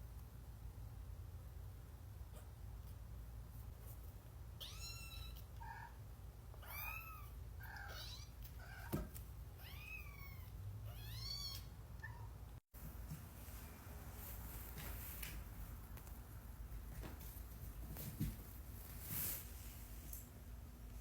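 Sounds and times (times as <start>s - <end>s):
kitten meowing: 4.6s - 5.9s, 6.6s - 9.0s, 9.6s - 12.3s.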